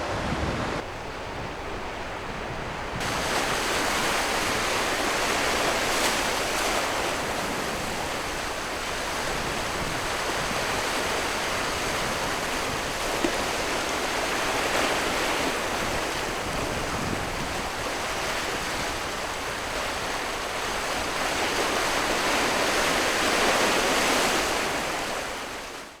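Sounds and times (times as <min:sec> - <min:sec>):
surf rushing: 0:00.0 - 0:00.8, 0:03.0 - 0:10.0.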